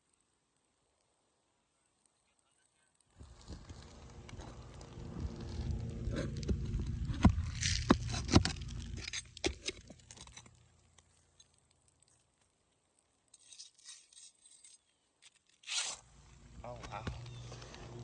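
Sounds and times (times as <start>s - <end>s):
sharp clicks and knocks: 6.2s - 11.5s.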